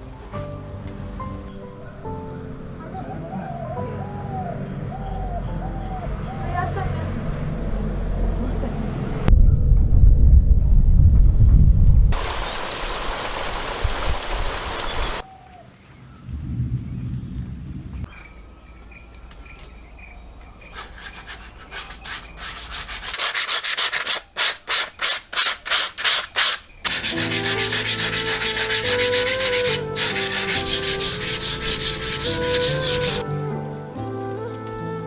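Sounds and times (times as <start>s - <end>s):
soft melodic background music: 0.0s - 10.4s, 26.9s - 35.0s
hand scraping food: 20.6s - 33.2s.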